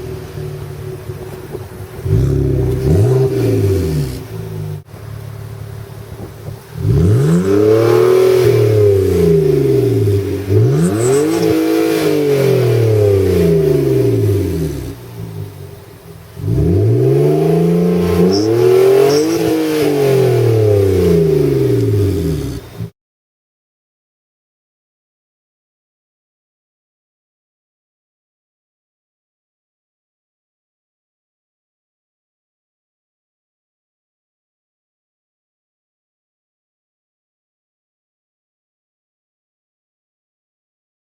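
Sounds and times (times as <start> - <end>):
car engine revving: 0.0 - 22.9.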